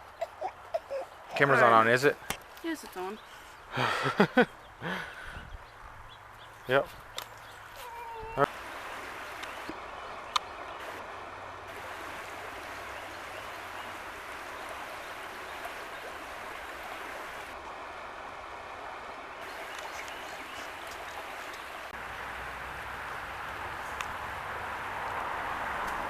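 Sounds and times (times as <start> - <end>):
stream water rushing: 5.9 - 26.0.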